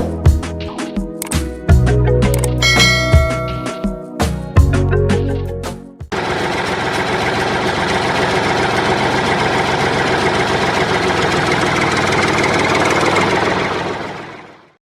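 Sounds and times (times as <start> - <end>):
tractor engine idling: 6.1 - 14.6.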